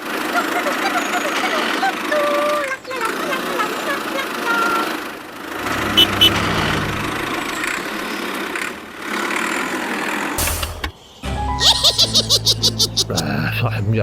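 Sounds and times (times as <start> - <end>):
motor humming: 5.4 - 8.2.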